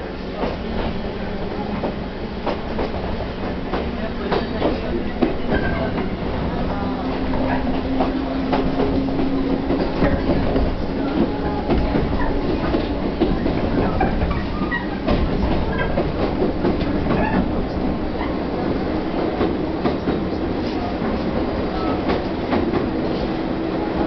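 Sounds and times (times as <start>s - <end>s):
train rumble from inside: 0.0s - 24.0s
wheels clicking over rail joints: 7.1s - 18.4s.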